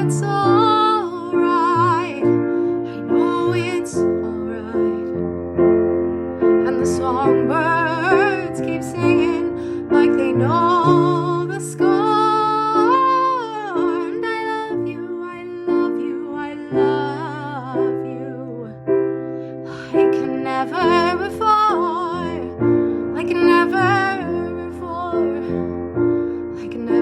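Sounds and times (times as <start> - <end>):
person singing with vibrato: 0.0 - 5.2, 6.6 - 18.8.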